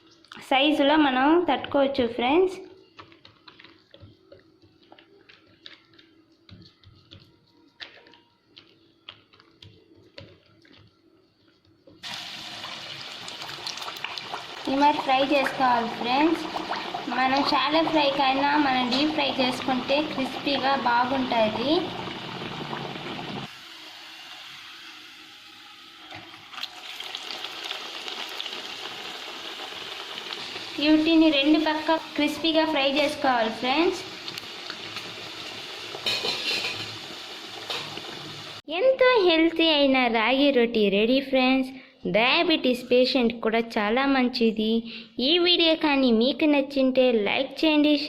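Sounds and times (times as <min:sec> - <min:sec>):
hands patting dough: 0:03.0 - 0:12.0
dough sizzling in hot oil: 0:12.0 - 0:38.7.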